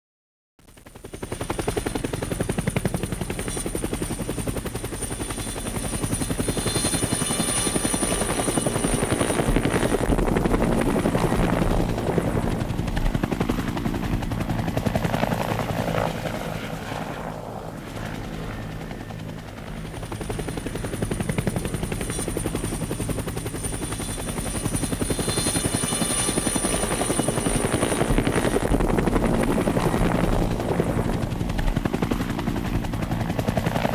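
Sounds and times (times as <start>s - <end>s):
helicopter rotor blades beating: 0.7s - 33.9s
turbine whine: 5.5s - 14.6s, 15.2s - 32.8s.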